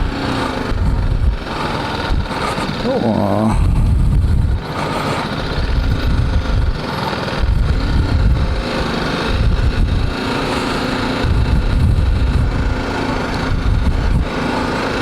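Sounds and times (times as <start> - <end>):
motorcycle engine running: 0.0 - 15.0
low rumble: 0.7 - 4.7.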